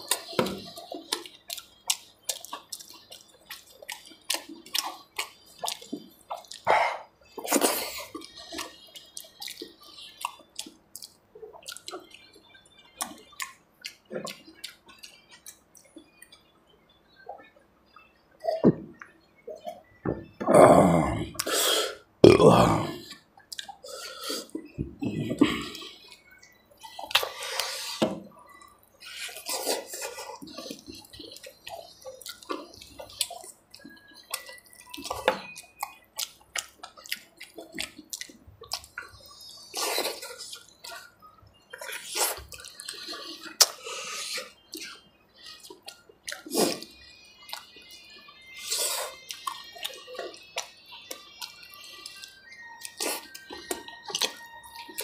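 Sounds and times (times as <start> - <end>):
man chewing and lip smacking: 0.0 - 16.5, 23.0 - 55.0.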